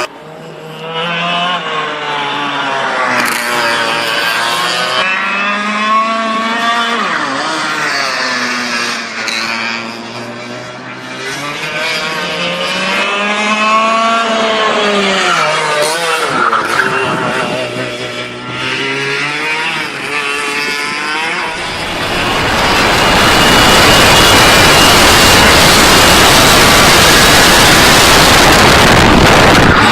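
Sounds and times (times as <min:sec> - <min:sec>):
kart engine revving: 0:00.0 - 0:29.9
loud rushing hiss: 0:21.5 - 0:29.9.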